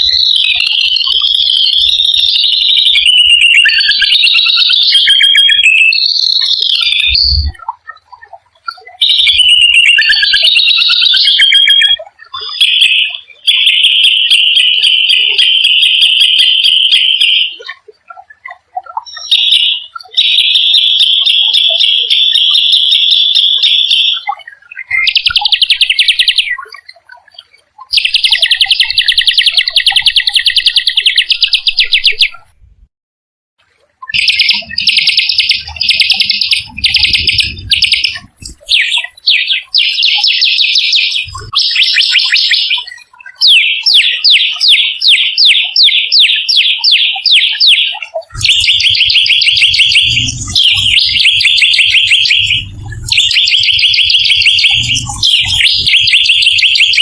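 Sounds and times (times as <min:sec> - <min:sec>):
songbird singing fast trills: 0:00.0 - 0:07.6, 0:08.9 - 0:17.4, 0:24.8 - 0:26.8, 0:27.9 - 0:32.3, 0:34.1 - 0:57.0
low rumble: 0:07.1 - 0:07.6, 0:35.7 - 0:38.7, 0:48.4 - 0:56.1.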